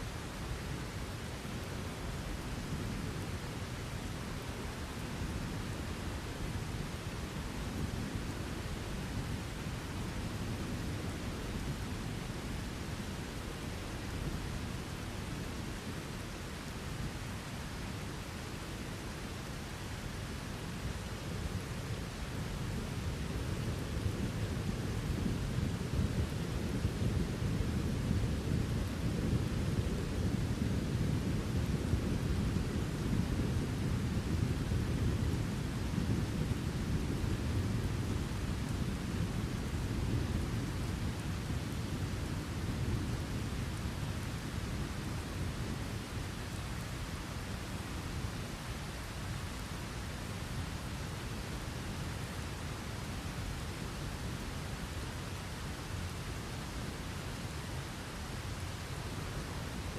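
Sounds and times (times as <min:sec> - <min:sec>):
heavy rain: 0:00.0 - 0:59.9
low rolling thunder: 0:22.1 - 0:46.6.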